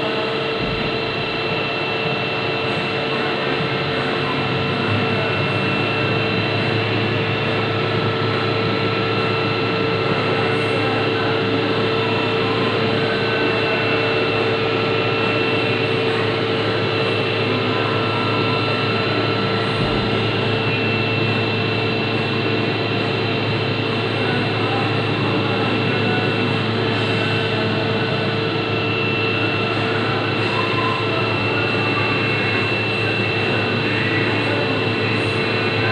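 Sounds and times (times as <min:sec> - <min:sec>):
milling machine whine: 0:00.0 - 0:35.9.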